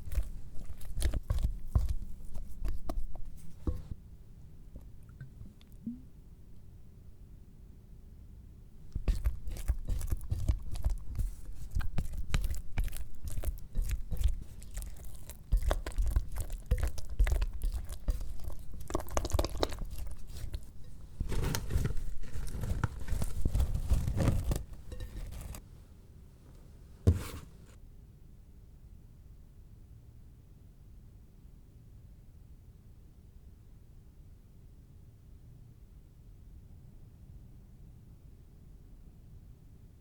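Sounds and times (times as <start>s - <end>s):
sticky dough mixing clicks and scrapes: 0.0s - 4.0s, 8.8s - 25.6s.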